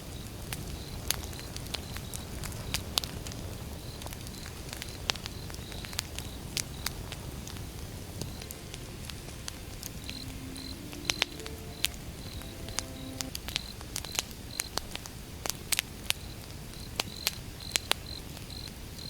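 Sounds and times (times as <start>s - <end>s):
wood fire crackling and popping: 0.2s - 8.6s
steady low rush: 6.9s - 13.9s.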